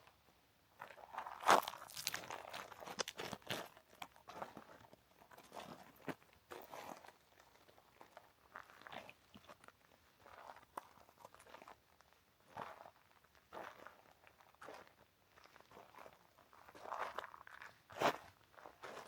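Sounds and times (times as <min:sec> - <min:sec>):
footsteps crunching on trail: 0:01.4 - 0:04.7.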